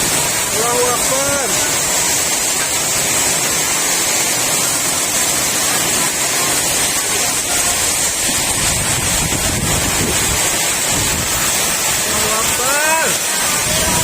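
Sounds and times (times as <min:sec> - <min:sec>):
heavy rain pouring: 0:00.0 - 0:14.0
wind gusting on microphone: 0:07.7 - 0:12.6, 0:13.3 - 0:14.0.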